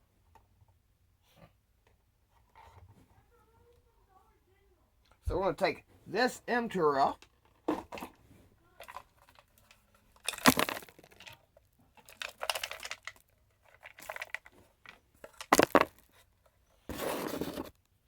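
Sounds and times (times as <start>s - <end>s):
plastic clacks and scrapes: 7.2s - 17.8s.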